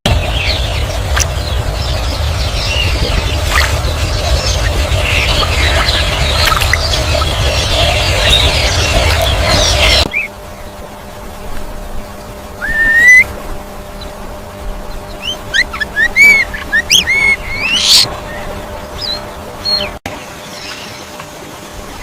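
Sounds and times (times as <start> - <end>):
bird whistling calls: 12.6 - 13.3, 15.1 - 19.9.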